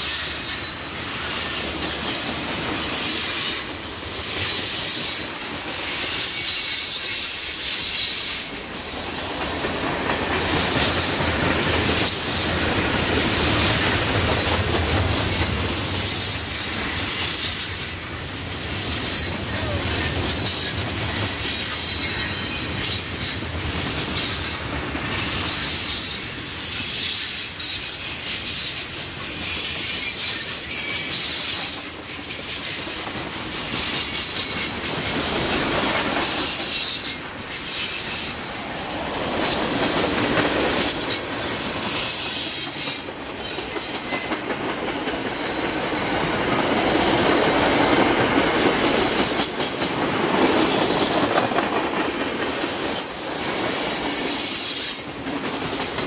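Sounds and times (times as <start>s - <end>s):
train wheels rumbling and clattering: 0.0s - 56.0s
high-pitched wheel squeals: 15.6s - 18.2s, 20.4s - 22.6s, 29.8s - 32.2s, 42.1s - 44.5s.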